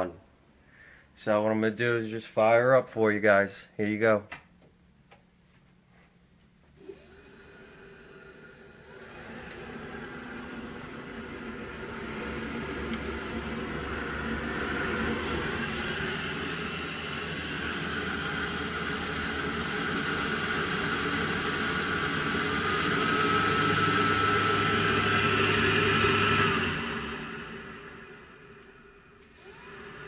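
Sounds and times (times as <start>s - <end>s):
thin whine: 6.7s - 30.0s
water heater fan whirring: 6.7s - 30.0s
low hum: 6.8s - 30.0s.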